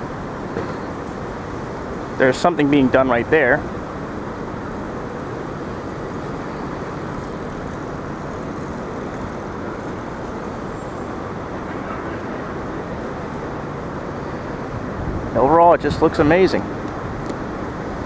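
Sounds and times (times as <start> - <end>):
city street traffic: 0.0 - 18.0.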